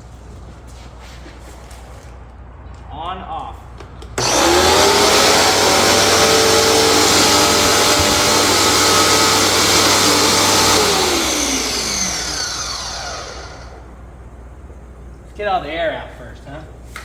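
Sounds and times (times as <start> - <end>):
pressure washer whining: 4.2 - 14.2.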